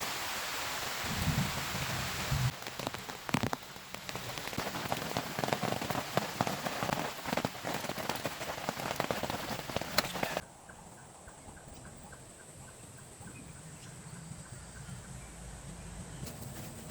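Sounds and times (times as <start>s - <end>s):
heavy rain hiss: 0.0s - 10.4s
raindrops ticking on surface: 1.2s - 10.4s.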